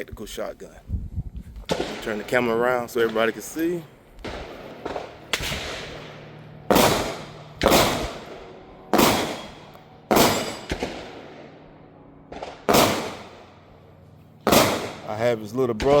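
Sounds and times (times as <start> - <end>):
echoing gunshots: 1.7 - 16.0.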